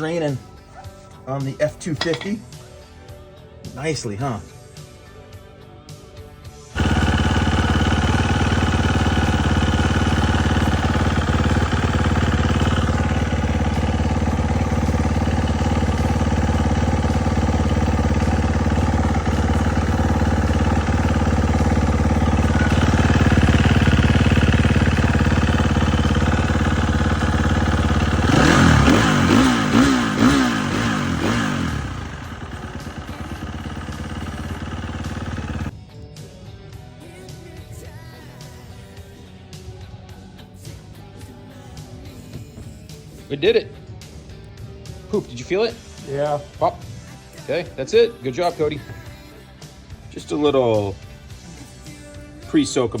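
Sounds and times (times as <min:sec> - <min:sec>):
engine idling and revving: 0:06.4 - 0:35.8.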